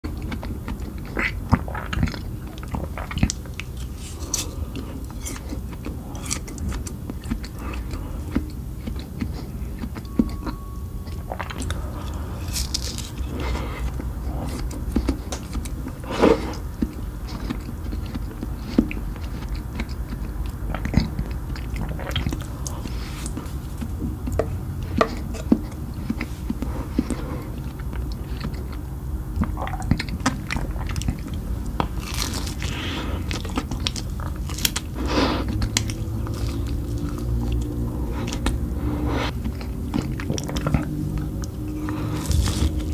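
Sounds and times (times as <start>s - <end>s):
steady low hum: 0.0s - 42.9s
crunching bites of ice cream: 29.4s - 38.5s, 39.4s - 42.9s.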